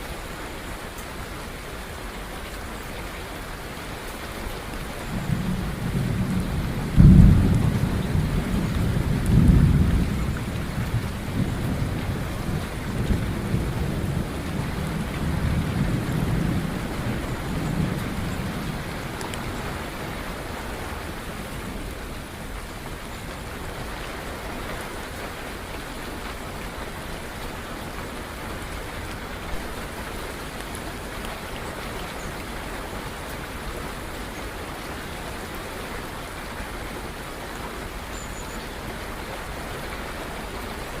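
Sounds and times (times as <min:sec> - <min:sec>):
steady rain: 0:00.0 - 0:41.0
thunder rumbling: 0:05.1 - 0:20.6.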